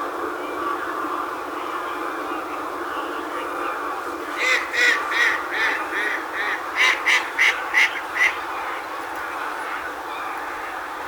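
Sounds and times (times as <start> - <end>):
duck quacking rapidly: 4.4 - 8.4.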